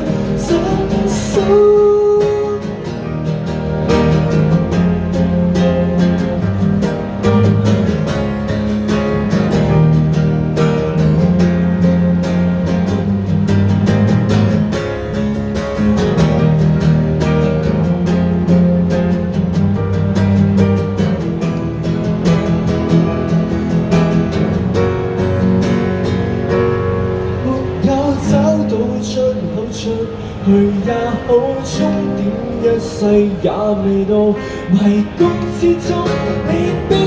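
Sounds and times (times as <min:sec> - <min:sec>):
acoustic guitars strummed: 0:00.0 - 0:37.0
low bass notes: 0:03.1 - 0:28.9.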